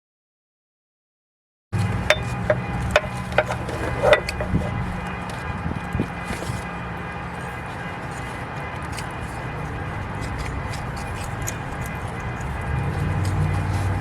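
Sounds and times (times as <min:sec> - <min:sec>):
hand tools clicking on metal: 0:02.0 - 0:05.4, 0:08.1 - 0:14.0.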